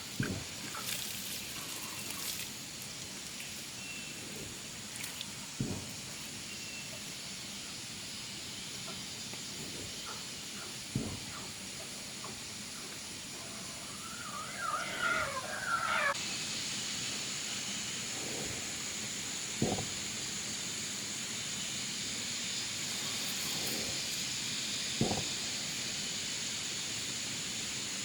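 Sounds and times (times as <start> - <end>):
outdoor hiss: 0.0 - 28.0
animal wavering call: 13.4 - 16.2.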